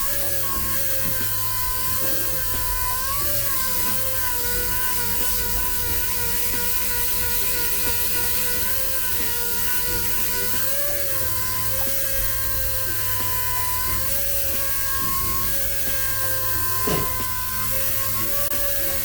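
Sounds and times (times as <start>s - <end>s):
power tool motor whining: 0.0s - 19.0s.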